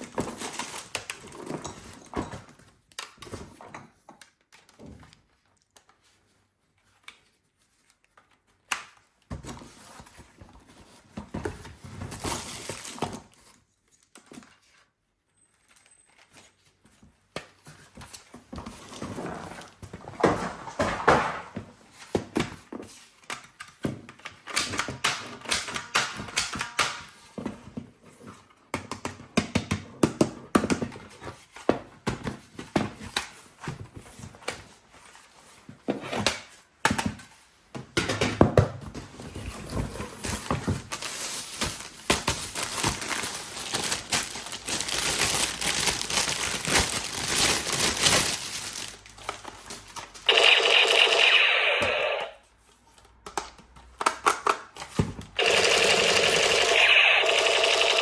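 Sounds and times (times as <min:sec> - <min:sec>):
packaging crinkling and rustling: 0:00.0 - 0:03.6, 0:04.2 - 0:14.9, 0:38.8 - 0:50.3.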